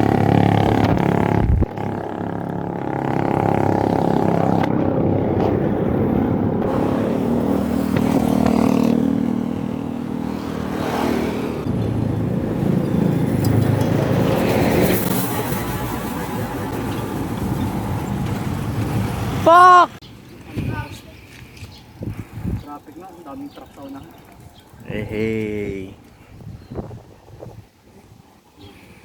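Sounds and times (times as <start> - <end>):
vehicle engines passing: 0.0 - 25.7.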